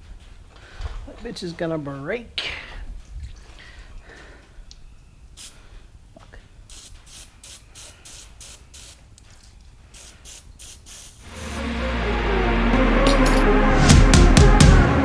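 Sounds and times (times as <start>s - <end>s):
aerosol spray hisses: 6.7s - 9.0s, 9.9s - 11.4s
music: 11.3s - 15.0s.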